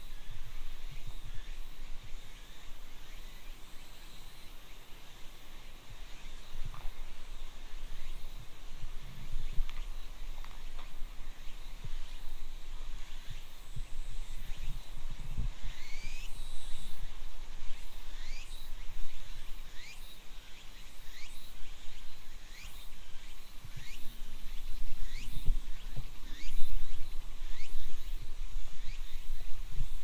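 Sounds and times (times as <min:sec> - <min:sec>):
background hiss: 0:00.0 - 0:30.0.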